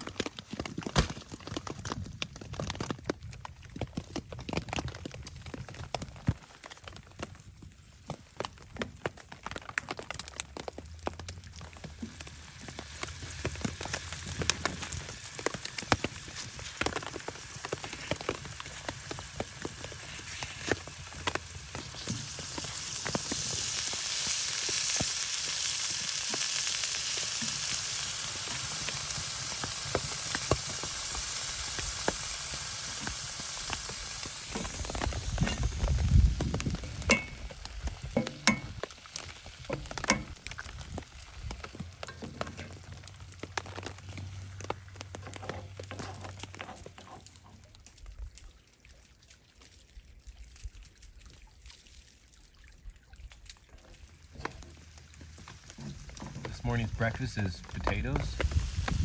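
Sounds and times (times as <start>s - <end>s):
food sizzling in a skillet: 11.8s - 44.7s, 58.1s - 59.0s
utensil tapping in pan: 37.0s - 37.4s, 38.1s - 38.9s.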